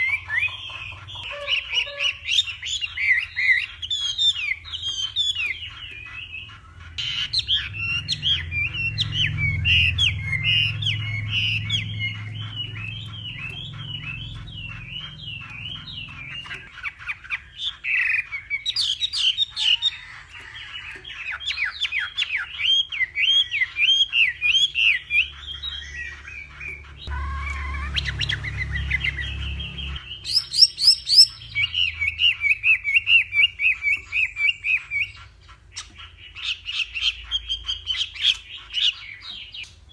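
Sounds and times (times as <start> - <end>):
low hum: 6.8 - 16.8, 25.5 - 30.3
bird singing whistled phrases: 21.5 - 35.2.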